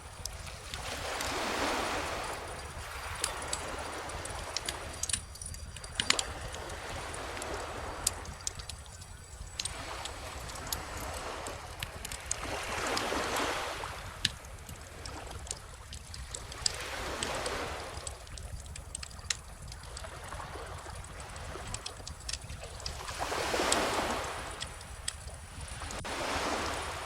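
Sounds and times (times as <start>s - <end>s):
ocean waves washing in: 0.0s - 8.8s
bonfire crackling and popping: 0.0s - 26.1s.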